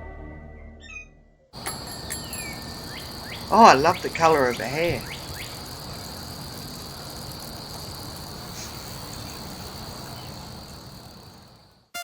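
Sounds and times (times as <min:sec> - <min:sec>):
crickets chirring: 0:01.6 - 0:11.9
hiss: 0:02.6 - 0:11.8.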